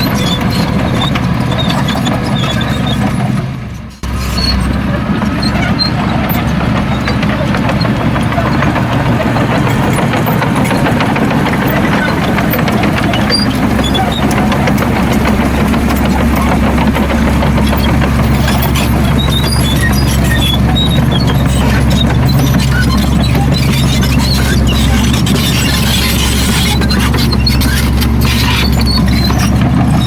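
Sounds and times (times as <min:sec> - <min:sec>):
heavy diesel engine running: 0:00.0 - 0:30.0
metallic rattle and clatter: 0:00.0 - 0:30.0.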